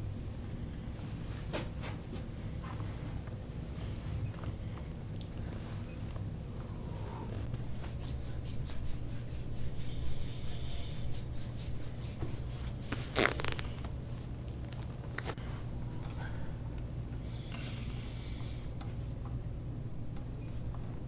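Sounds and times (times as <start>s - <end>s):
steady low hum: 0.0s - 21.0s
hands rubbing skin: 7.6s - 14.6s.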